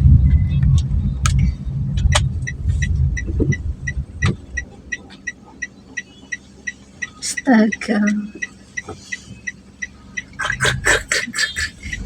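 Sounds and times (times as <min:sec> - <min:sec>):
vehicle engine rumbling: 0:00.0 - 0:12.0
high-pitched ticking: 0:02.4 - 0:12.0.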